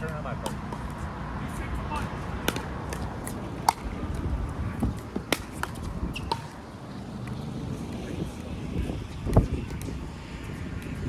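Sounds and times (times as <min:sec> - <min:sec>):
paddles hitting plastic ball: 0:00.0 - 0:01.0, 0:02.0 - 0:06.6
wind on microphone: 0:03.1 - 0:06.6, 0:07.5 - 0:11.0.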